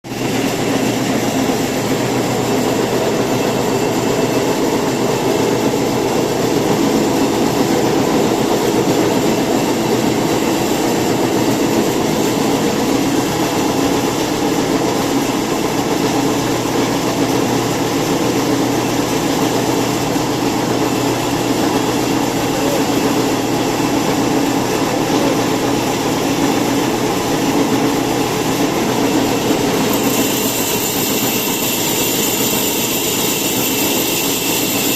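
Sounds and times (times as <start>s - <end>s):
woodworking machine running: 0.1s - 34.9s.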